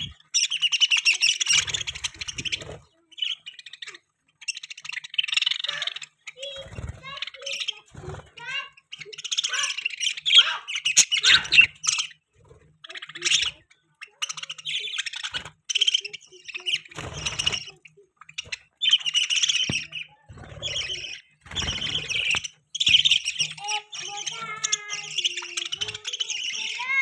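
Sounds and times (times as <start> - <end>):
budgerigars twittering: 0.0 - 27.0.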